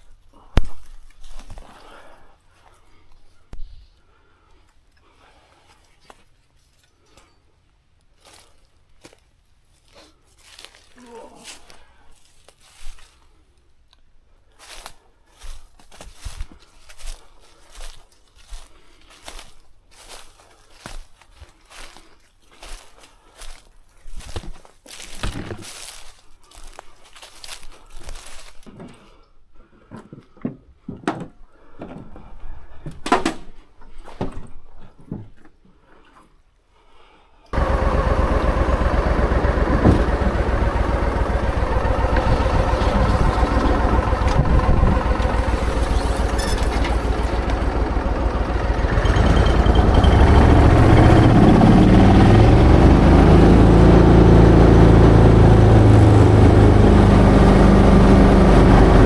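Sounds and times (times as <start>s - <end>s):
rustling and crunching: 14.6s - 28.8s
motor engine running: 37.6s - 59.0s.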